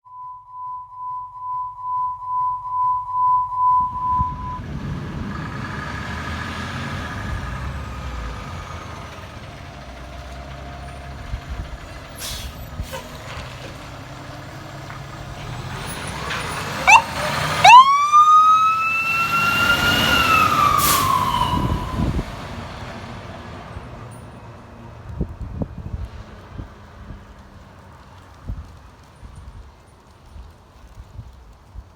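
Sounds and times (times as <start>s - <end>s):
steady beep: 0.0s - 4.6s
siren wailing: 0.9s - 4.7s, 16.8s - 22.2s
fire engine running: 4.2s - 31.9s.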